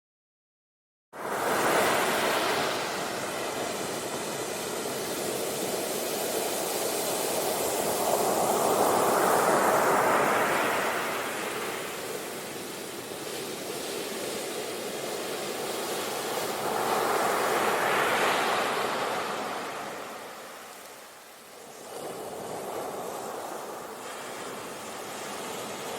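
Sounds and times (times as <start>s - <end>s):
sea waves washing ashore: 1.2s - 25.9s.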